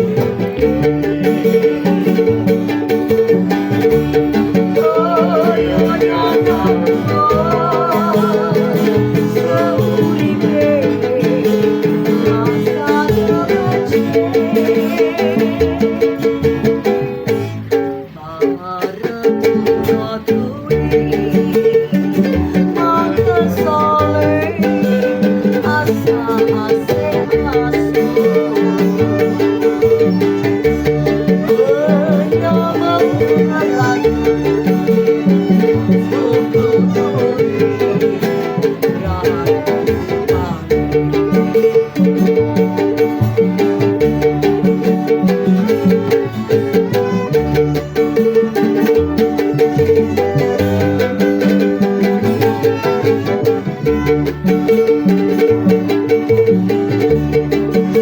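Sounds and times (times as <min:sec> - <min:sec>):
instrumental pop band: 0:00.0 - 0:58.0.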